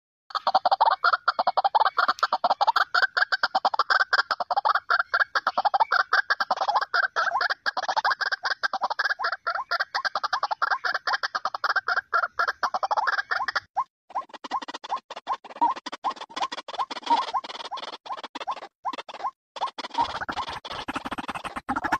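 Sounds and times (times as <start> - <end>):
waterhen calling: 0.3 - 13.9, 19.8 - 21.9.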